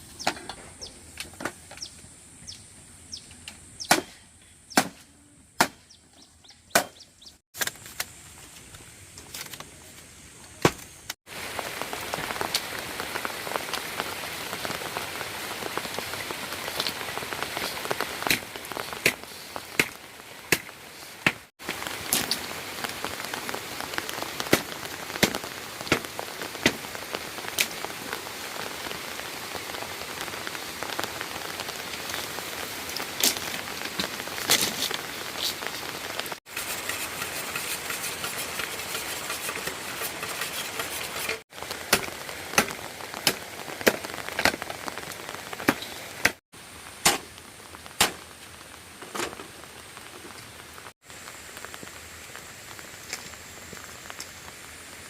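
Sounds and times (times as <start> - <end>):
loud raindrops striking close by: 11.3 - 19.0, 19.6 - 36.4
rain falling: 11.3 - 55.0.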